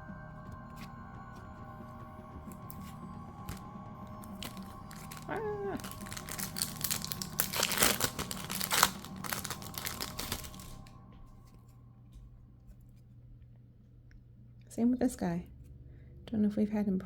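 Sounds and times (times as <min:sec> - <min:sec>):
wrappers crinkling and tearing: 0:02.5 - 0:10.9.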